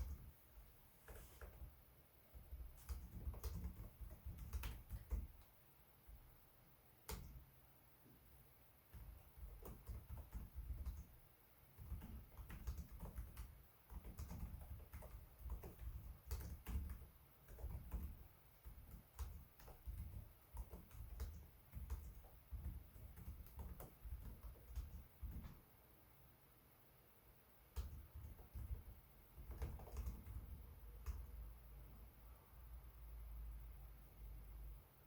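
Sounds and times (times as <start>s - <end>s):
laptop keyboard typing: 0.0s - 0.4s, 2.3s - 5.5s, 7.0s - 7.4s, 8.9s - 25.6s, 27.7s - 31.4s.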